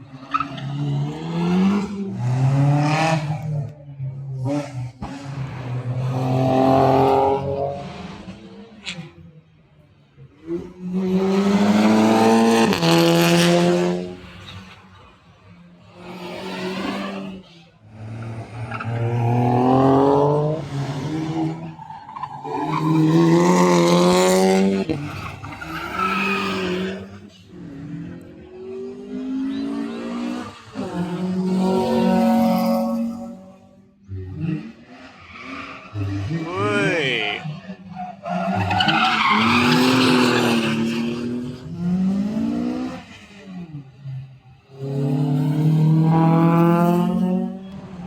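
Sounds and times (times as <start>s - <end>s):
race cars accelerating past: 0.0s - 48.0s.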